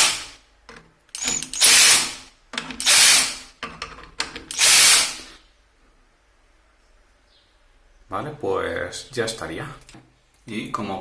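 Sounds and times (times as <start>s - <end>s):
cordless drill driving screws: 0.0s - 0.3s, 1.2s - 2.2s, 2.8s - 3.4s, 4.5s - 5.4s
drill clutch ratcheting: 0.0s - 0.4s, 1.2s - 3.5s, 4.3s - 5.3s.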